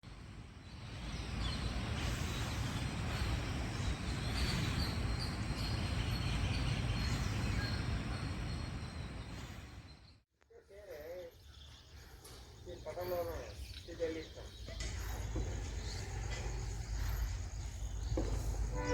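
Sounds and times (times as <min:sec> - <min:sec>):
passenger train rumbling past: 0:00.1 - 0:10.1, 0:12.6 - 0:18.9
insects chirping: 0:00.2 - 0:10.2, 0:10.8 - 0:18.9.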